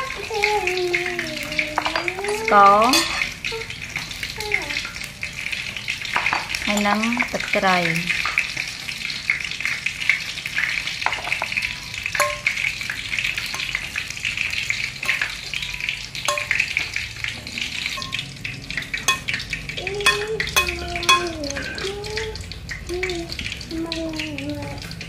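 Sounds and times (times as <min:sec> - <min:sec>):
food sizzling in hot oil: 0:00.0 - 0:25.0
utensil clicking against pan: 0:11.0 - 0:12.7, 0:13.4 - 0:21.8.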